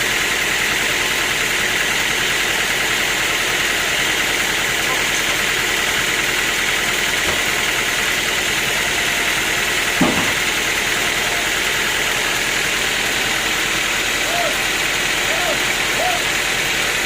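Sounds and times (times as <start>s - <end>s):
sawmill machinery droning: 0.0s - 17.0s
short knock: 10.0s - 10.4s.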